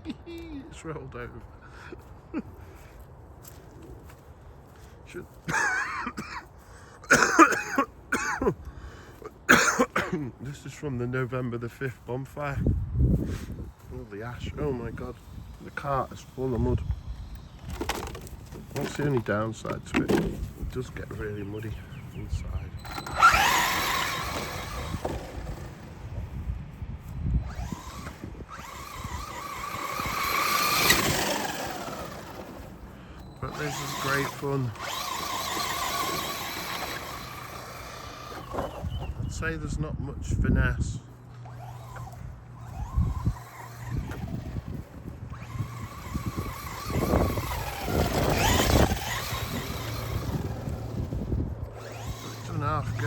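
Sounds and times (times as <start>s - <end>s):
tyres rustling in grass: 11.6s - 39.3s, 41.0s - 53.0s
rc car electric motor whining: 14.0s - 26.4s, 27.4s - 39.7s, 40.8s - 53.0s.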